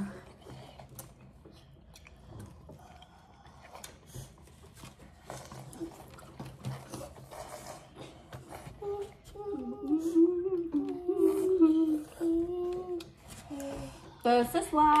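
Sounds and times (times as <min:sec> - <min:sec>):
person chewing wetly: 0:00.2 - 0:07.2.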